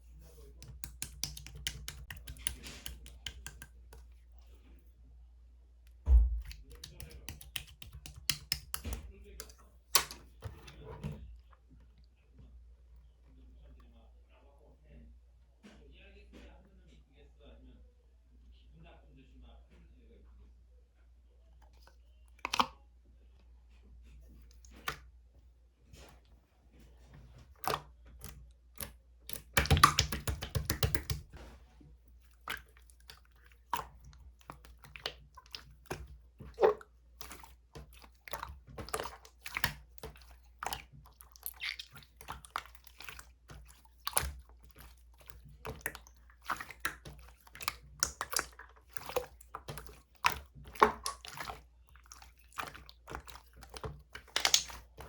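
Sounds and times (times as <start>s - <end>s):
slime popping and clicking: 6.2s - 9.0s, 28.8s - 31.3s, 53.7s - 54.9s.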